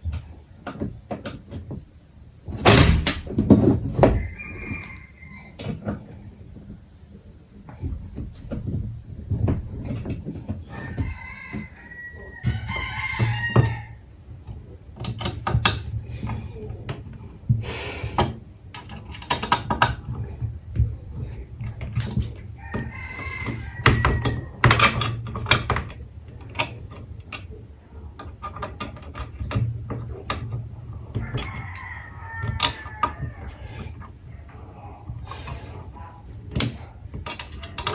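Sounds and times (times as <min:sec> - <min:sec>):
rooster crowing: 0:04.0 - 0:06.1, 0:10.6 - 0:14.0, 0:22.5 - 0:24.7, 0:31.2 - 0:33.8.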